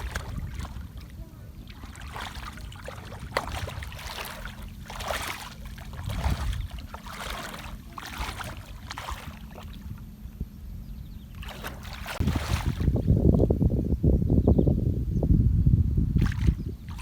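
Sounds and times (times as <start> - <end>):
river water splashing: 0.0 - 10.2, 11.3 - 13.1, 16.2 - 17.0
wind rumble on microphone: 0.0 - 17.0.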